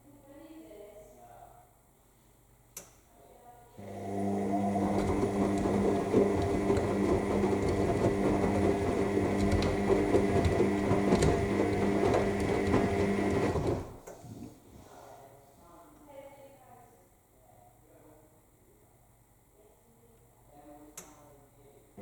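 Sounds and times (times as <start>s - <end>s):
washing machine motor hum: 3.8s - 14.0s
wet laundry tumbling: 3.9s - 14.0s.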